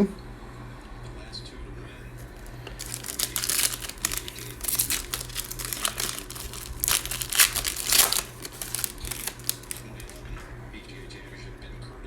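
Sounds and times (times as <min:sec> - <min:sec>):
plastic wrapper crinkling: 0:02.2 - 0:10.4.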